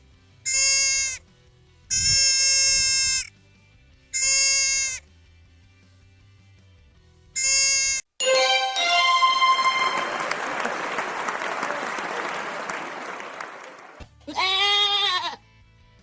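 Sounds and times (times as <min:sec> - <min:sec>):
sheep or goat bleat: 0:00.5 - 0:01.2, 0:01.9 - 0:03.3, 0:04.1 - 0:05.0, 0:07.4 - 0:08.0, 0:14.3 - 0:15.4
stepping musical flourish: 0:08.2 - 0:11.4
crowd applause: 0:08.2 - 0:14.0.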